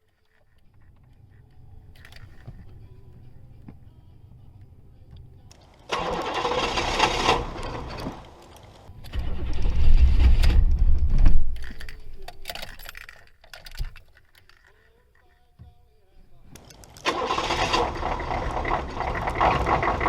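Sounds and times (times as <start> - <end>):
engine cranking: 0.0 - 14.9, 16.3 - 20.0
diesel engine deep rumble: 1.0 - 11.6, 16.5 - 20.0.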